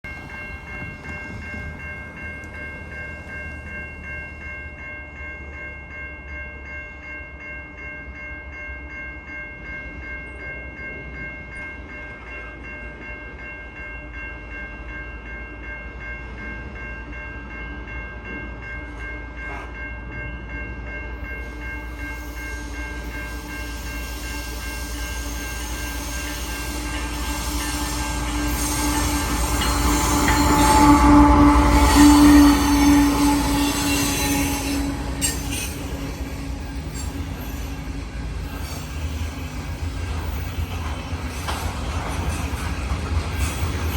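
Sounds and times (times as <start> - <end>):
train rumble: 0.0 - 5.6, 17.5 - 43.9
steady high-pitched tones: 21.3 - 43.9.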